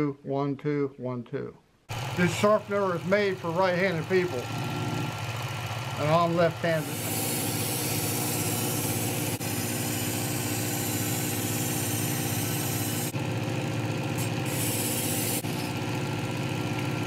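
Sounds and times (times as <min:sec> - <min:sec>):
belt sharpener grinding knife: 0:03.9 - 0:05.3, 0:06.6 - 0:13.2, 0:14.2 - 0:15.8.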